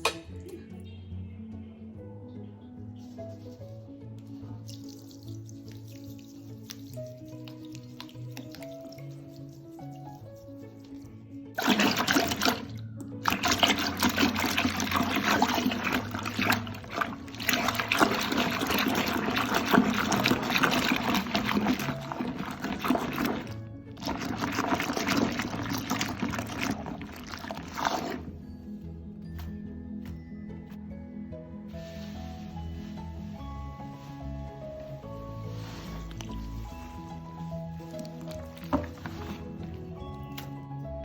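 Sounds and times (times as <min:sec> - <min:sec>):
soft background music: 0:00.0 - 0:41.0
water running from a tap: 0:04.6 - 0:11.0, 0:11.6 - 0:28.3, 0:37.8 - 0:39.5.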